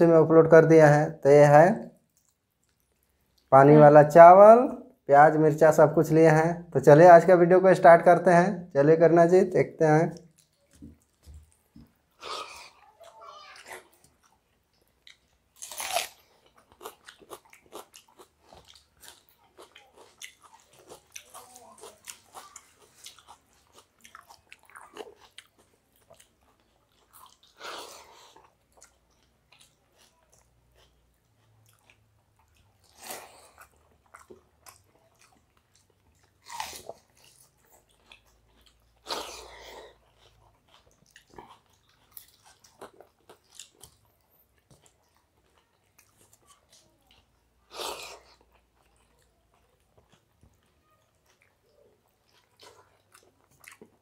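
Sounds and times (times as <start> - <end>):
chewing food: 1.9 - 3.6, 10.1 - 54.0
crunchy bites: 15.0 - 28.9.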